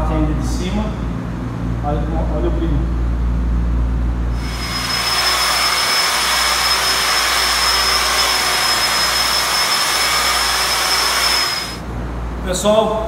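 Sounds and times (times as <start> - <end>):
electric polisher motor whine: 4.4 - 11.8.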